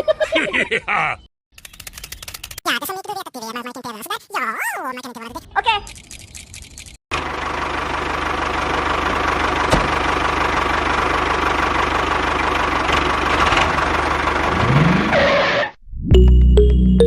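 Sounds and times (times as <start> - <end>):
small tractor engine running: 6.5 - 15.1.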